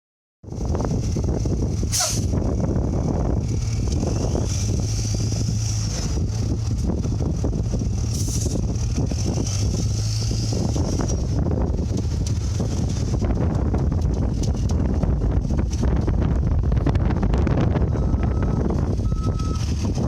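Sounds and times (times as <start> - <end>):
brief rushes of noise: 1.9 - 2.3.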